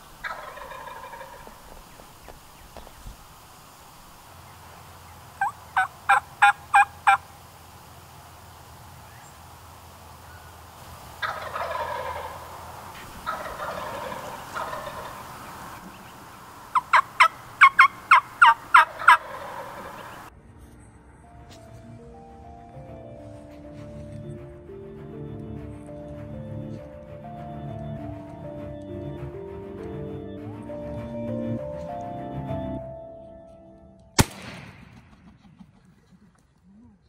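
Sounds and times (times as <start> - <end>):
turkey yelps: 0.2 - 1.8, 5.4 - 7.2, 11.2 - 12.6, 13.2 - 16.1, 16.7 - 20.3
turkey gobbles: 5.4 - 7.2, 11.2 - 20.3.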